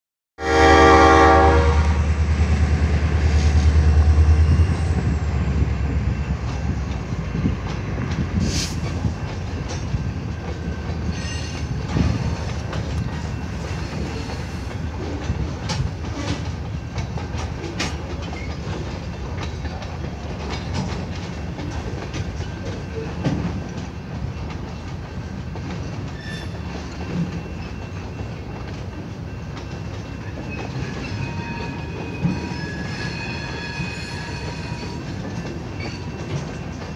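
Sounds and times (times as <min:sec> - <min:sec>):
locomotive horn blast: 0:00.4 - 0:02.2
locomotive engine rumbling: 0:00.6 - 0:36.9.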